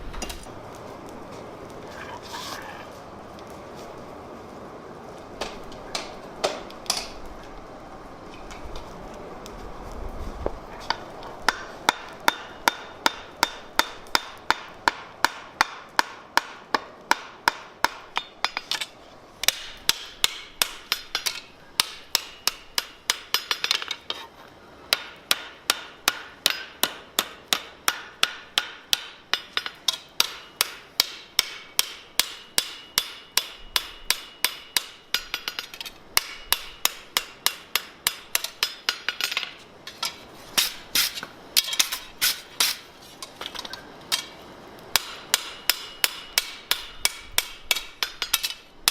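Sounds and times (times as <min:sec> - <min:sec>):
hammer ringing on anvil: 0:26.1 - 0:39.0, 0:45.0 - 0:48.9.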